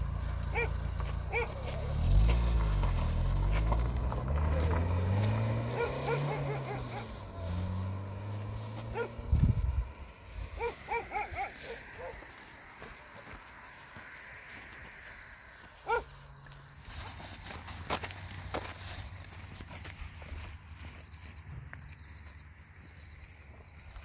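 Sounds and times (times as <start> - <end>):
car engines revving: 0.0 - 12.8
animal calls: 0.5 - 2.2, 4.5 - 9.2, 10.4 - 12.4.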